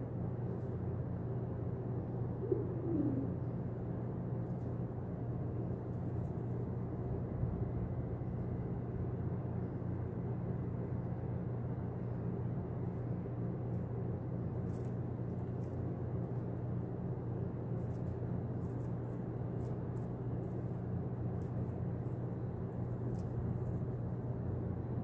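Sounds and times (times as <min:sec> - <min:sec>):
constant hum: 0:00.0 - 0:25.0
low rumble: 0:06.8 - 0:09.9.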